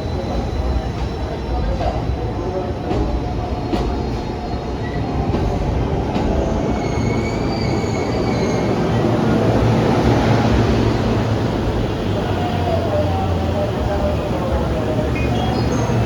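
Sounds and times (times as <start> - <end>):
electric train rumbling: 0.0 - 16.0
high wheel squeal: 6.6 - 9.6.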